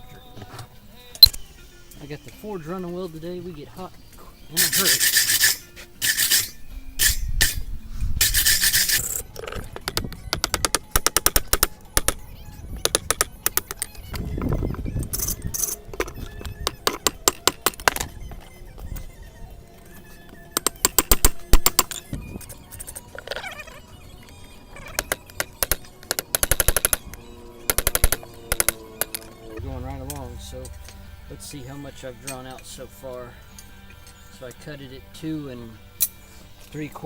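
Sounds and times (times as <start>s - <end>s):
scraping on hot steel: 4.5s - 9.2s
hammer blows on anvil: 4.6s - 9.2s, 29.6s - 34.3s.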